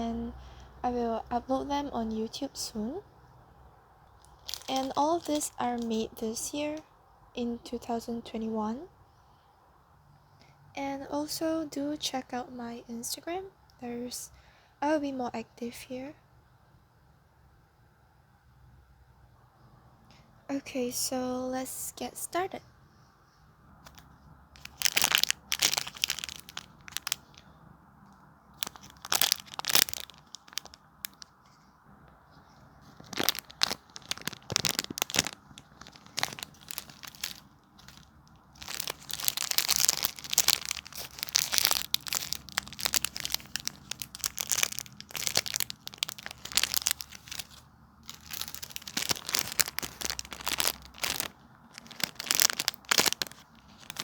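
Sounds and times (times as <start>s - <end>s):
squishies crinkling and crackling: 4.1s - 6.8s, 23.8s - 27.5s, 28.1s - 54.0s.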